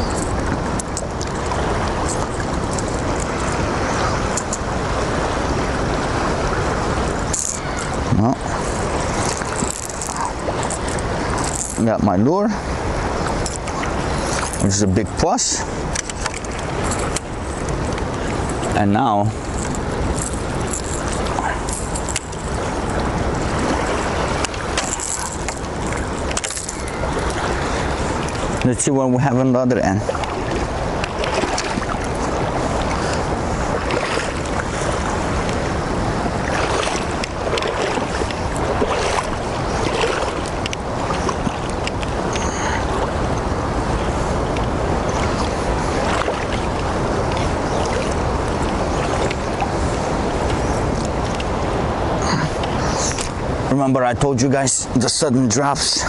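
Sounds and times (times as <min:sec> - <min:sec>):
river water rushing: 0:00.0 - 0:56.0
faint tackle clicks: 0:08.6 - 0:11.8, 0:15.9 - 0:18.8, 0:19.4 - 0:23.2, 0:24.4 - 0:27.4.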